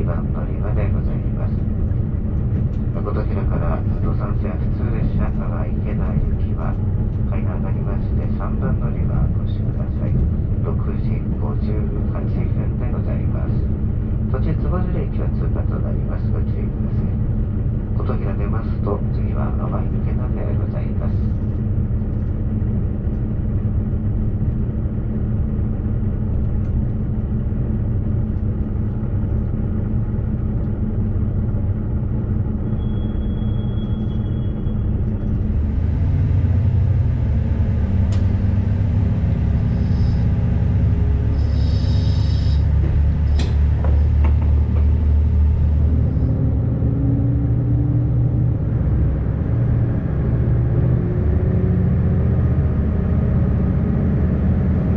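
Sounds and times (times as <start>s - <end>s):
diesel railcar engine rumble: 0.0s - 54.9s
thin high whine: 32.7s - 46.8s.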